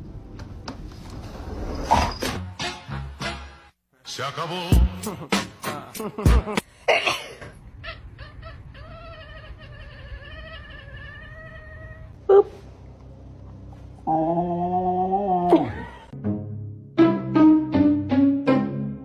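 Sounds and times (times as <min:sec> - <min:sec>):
cat yowling: 0:08.8 - 0:12.5.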